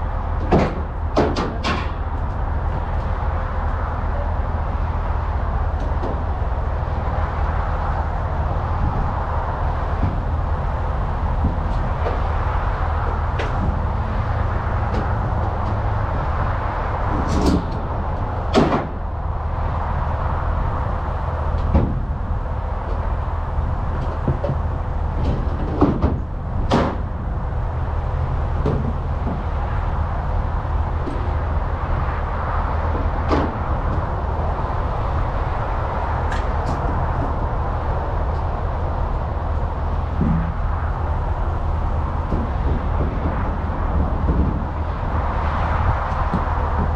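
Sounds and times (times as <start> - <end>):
diesel truck engine humming: 0.0 - 46.9
sharp knocks and clunks: 0.4 - 2.0, 18.5 - 19.0, 21.6 - 22.1, 24.0 - 27.1, 28.5 - 29.6, 32.9 - 34.1, 40.0 - 40.8, 46.0 - 46.9.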